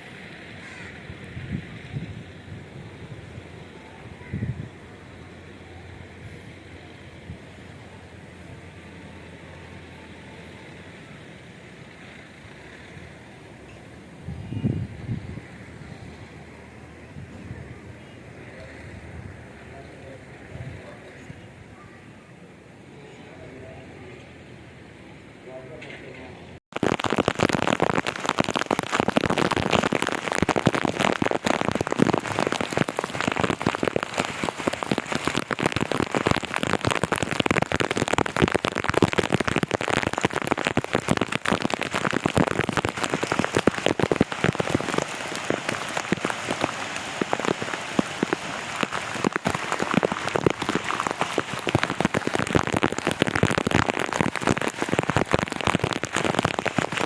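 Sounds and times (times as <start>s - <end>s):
heavy rain falling: 0.0s - 19.7s, 26.7s - 57.0s.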